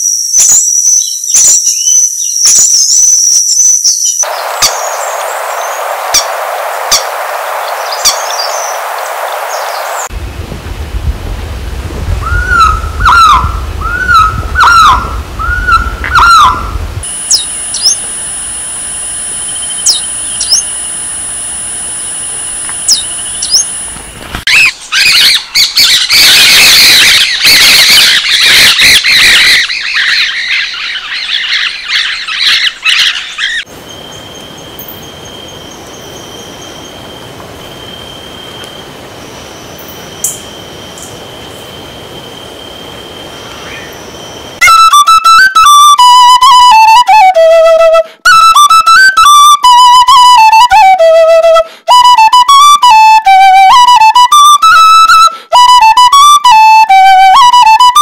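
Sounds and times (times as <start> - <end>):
bird calling clear notes: 0.0 - 10.1, 12.2 - 18.1, 19.5 - 20.8, 22.6 - 38.8
high-pitched tones with sharp chips: 44.6 - 47.0.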